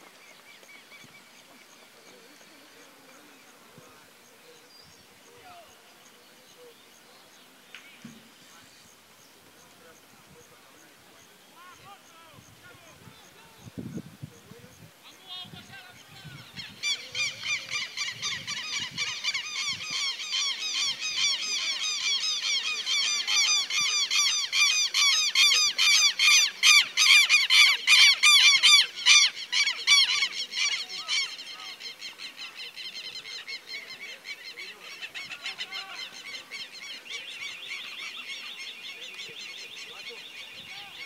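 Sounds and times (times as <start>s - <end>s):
birds making harsh calls: 11.2s - 41.0s.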